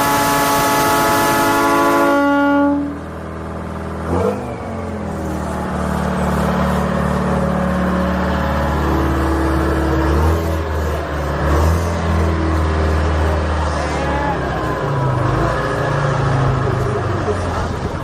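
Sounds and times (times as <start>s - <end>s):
multi-tone horn blast: 0.0s - 3.1s
vehicle engine running: 0.0s - 18.0s.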